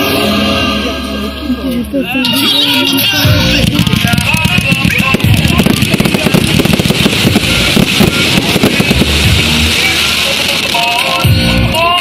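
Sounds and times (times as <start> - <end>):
loud music with a beat: 2.0 - 12.0
fireworks bangs and crackles: 3.2 - 12.0.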